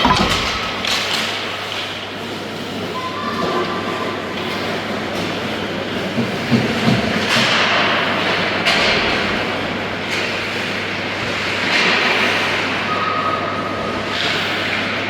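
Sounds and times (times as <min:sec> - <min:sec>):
hockey sticks and puck knocking: 0:00.0 - 0:01.4.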